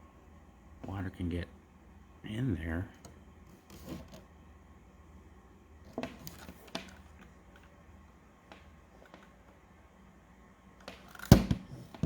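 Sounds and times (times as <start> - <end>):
handling noise with clicks and taps: 5.9 - 7.8, 8.4 - 9.6, 10.8 - 12.0.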